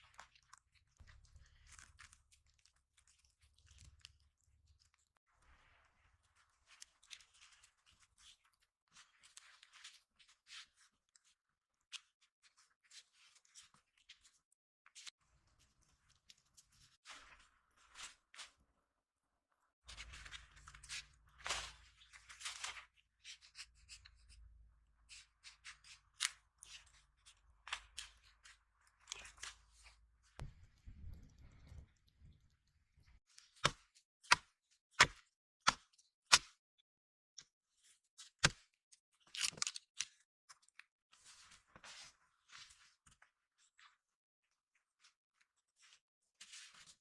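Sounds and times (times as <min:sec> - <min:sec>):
crunching and scraping handling: 0:30.4 - 0:33.2
sharp knocks: 0:30.4 - 0:33.2.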